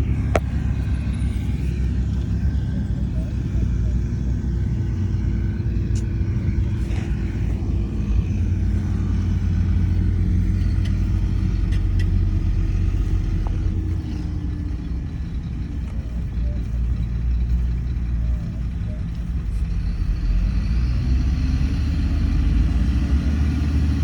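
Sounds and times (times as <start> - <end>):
faint whine: 0.0 - 22.8
diesel earthmoving machine drone: 0.0 - 24.0.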